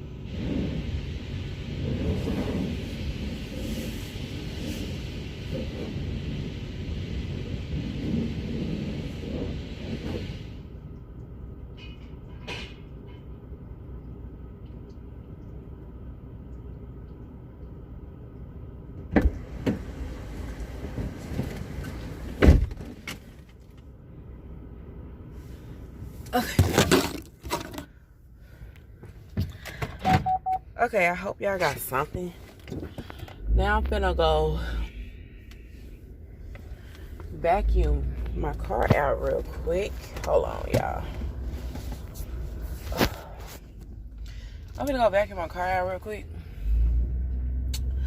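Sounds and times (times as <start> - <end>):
car door shutting thump: 22.4 - 22.9
low hum: 31.9 - 48.0.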